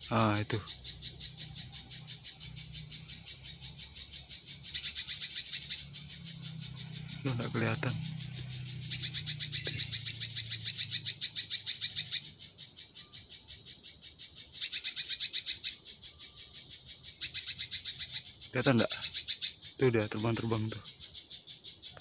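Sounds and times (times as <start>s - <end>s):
high insect whine: 0.0s - 22.0s
small bird calling rapid high notes: 4.7s - 12.4s.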